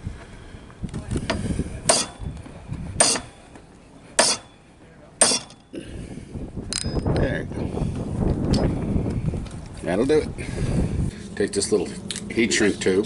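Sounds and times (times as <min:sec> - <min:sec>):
hammer blows on metal: 0:01.3 - 0:02.3, 0:03.0 - 0:03.4, 0:04.2 - 0:04.6, 0:05.2 - 0:05.7.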